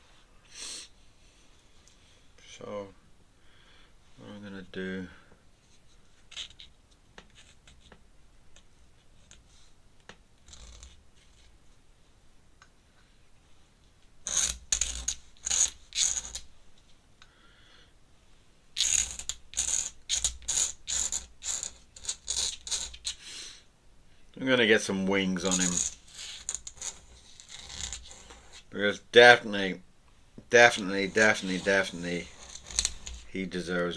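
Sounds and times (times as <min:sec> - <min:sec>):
pen scratching on paper: 0:25.4 - 0:28.7, 0:30.7 - 0:33.4.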